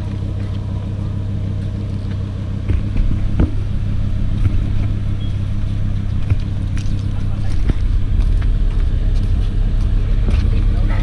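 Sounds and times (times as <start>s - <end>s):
car engine droning steadily: 0.0s - 11.0s.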